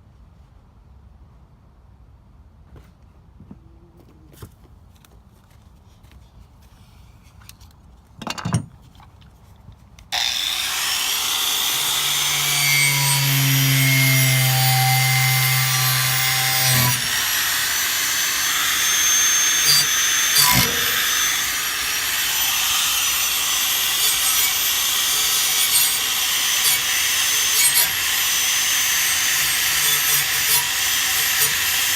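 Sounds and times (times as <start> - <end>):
power tool grinding metal: 10.2 - 31.9.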